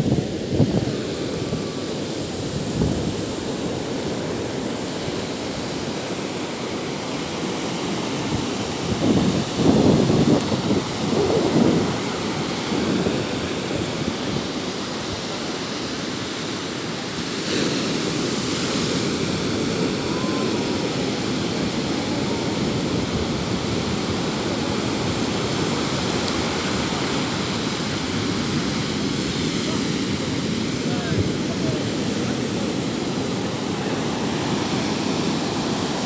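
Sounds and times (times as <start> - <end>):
sea waves washing onto shore: 0.0 - 36.0.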